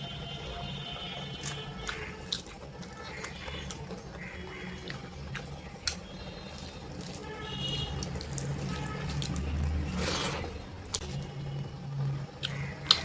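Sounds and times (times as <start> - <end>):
wet squelching and chewing: 1.4 - 11.2, 12.4 - 13.0
lip-smacking clicks: 12.4 - 13.0.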